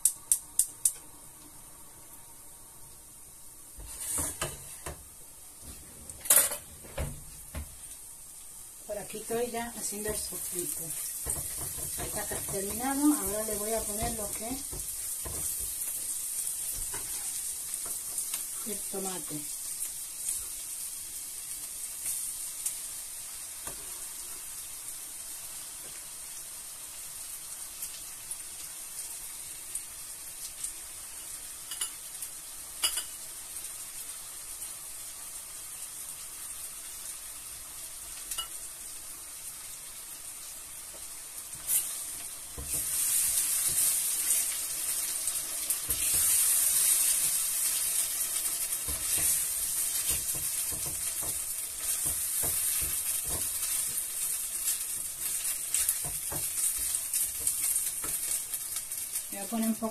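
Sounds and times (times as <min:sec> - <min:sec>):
onion and garlic sizzling in oil: 0:00.0 - 0:59.9.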